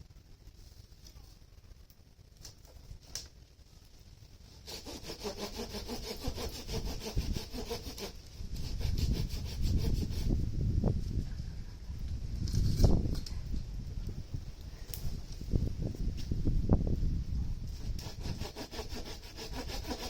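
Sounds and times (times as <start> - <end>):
hand saw cutting wood: 4.6 - 10.4, 17.8 - 20.0.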